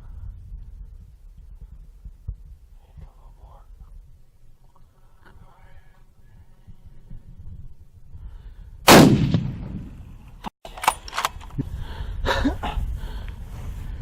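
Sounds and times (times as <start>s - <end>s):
rifle shot with echo: 8.9s - 10.0s.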